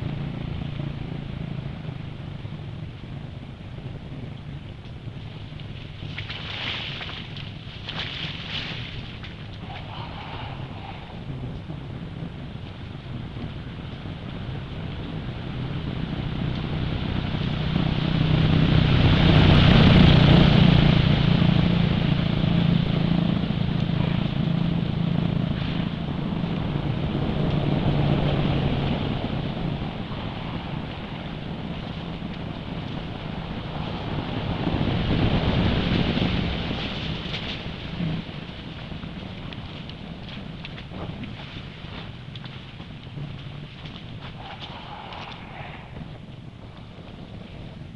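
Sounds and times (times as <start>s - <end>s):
engine running steadily: 0.0s - 47.9s
wind rumbling on microphone: 0.0s - 47.9s.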